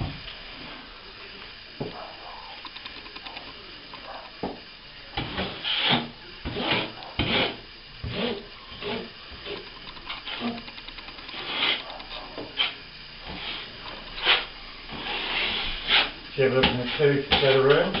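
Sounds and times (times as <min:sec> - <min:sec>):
hand tool rubbing plaster: 0:05.2 - 0:09.6, 0:11.3 - 0:18.0.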